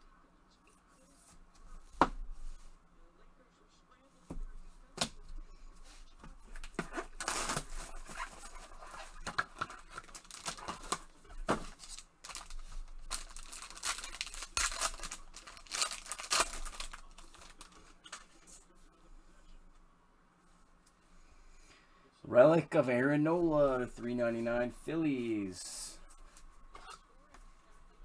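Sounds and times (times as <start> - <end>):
packaging being torn and crinkled: 6.6 - 18.2.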